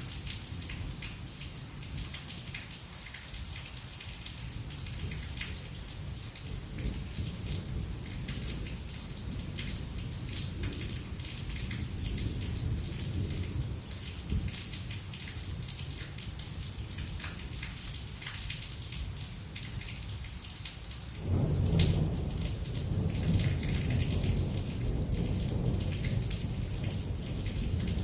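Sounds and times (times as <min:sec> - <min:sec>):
heavy rain falling: 0:00.0 - 0:28.0
thunder rumbling: 0:21.2 - 0:28.0.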